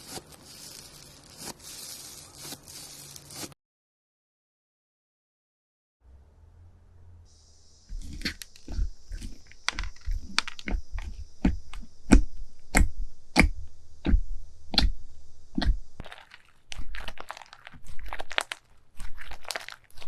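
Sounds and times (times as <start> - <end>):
faint hum: 6.0 - 20.0
crunchy slime crackling pops: 15.6 - 20.0.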